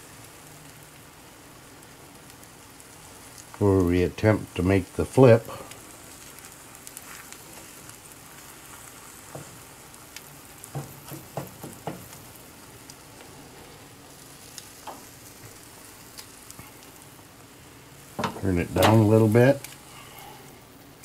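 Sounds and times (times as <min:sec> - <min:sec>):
food sizzling in a frying pan: 0:00.0 - 0:21.0
spatula scraping and tapping pan: 0:10.6 - 0:12.2.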